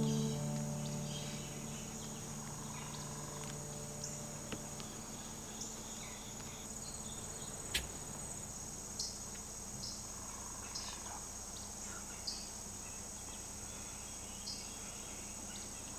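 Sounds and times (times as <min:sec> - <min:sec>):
insects trilling: 0:00.0 - 0:09.2.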